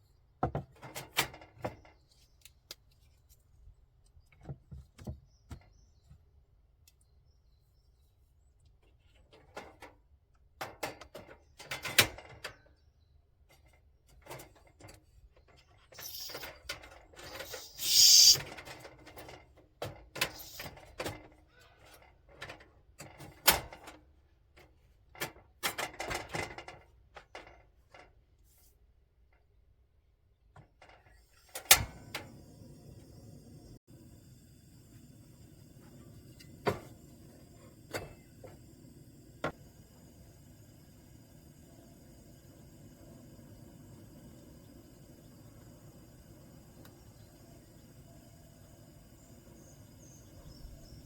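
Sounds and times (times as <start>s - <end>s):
rushing hissing noise: 16.0s - 16.5s, 17.2s - 18.4s, 20.3s - 20.7s.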